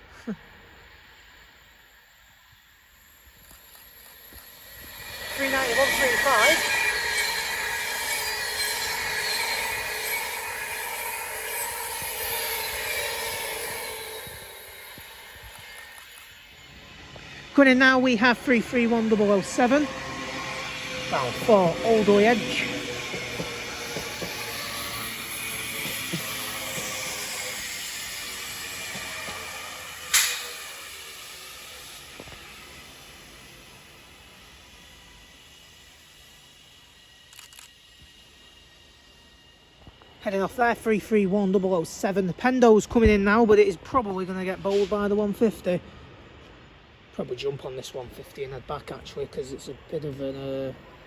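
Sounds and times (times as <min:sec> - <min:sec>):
sharp burst of hiss: 0:00.0 - 0:18.2, 0:19.3 - 0:40.2
electric train passing at speed: 0:00.0 - 0:51.0
train whine lowering in pitch: 0:00.0 - 0:51.0.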